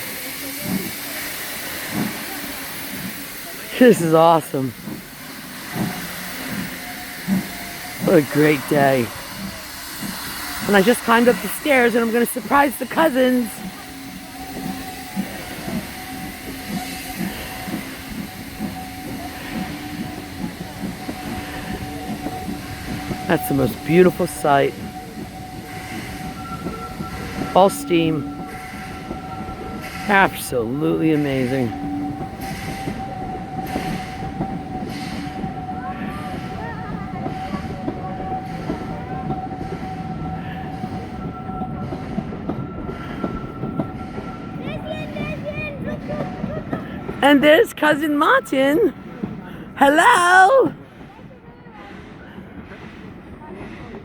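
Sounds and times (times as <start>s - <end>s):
steam train chuffing: 0.0s - 54.0s
steady high tone: 49.8s - 50.8s.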